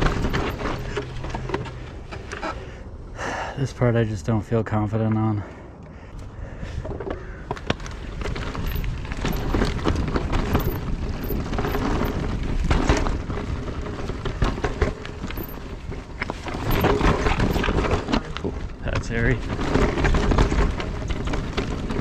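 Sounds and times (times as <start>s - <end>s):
bike clattering over rocks: 0.0s - 2.3s, 7.1s - 22.0s
steady low rumble: 0.0s - 13.7s.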